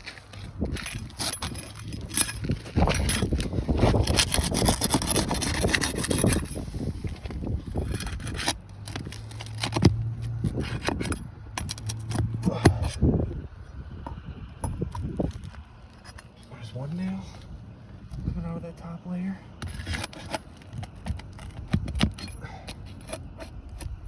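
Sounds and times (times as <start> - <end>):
metal bar scraping shingles: 0.0 - 6.8, 7.6 - 12.8.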